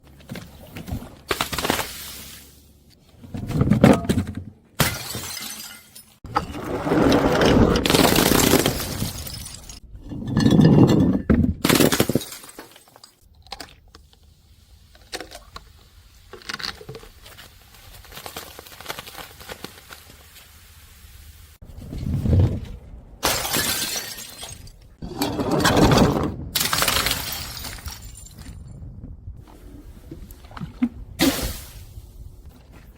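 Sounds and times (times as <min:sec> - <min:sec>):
glass bottles shattering: 0:04.8 - 0:06.2, 0:07.8 - 0:13.2, 0:23.2 - 0:25.8, 0:26.6 - 0:28.6
objects crunching and crackling: 0:14.9 - 0:20.3.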